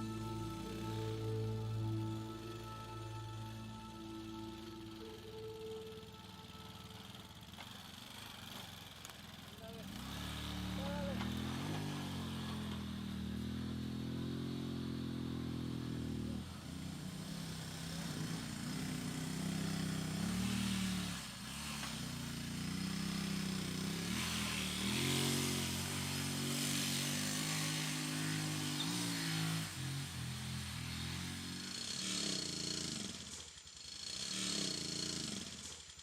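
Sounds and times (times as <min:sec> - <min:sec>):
engine running: 0:00.0 - 0:36.0.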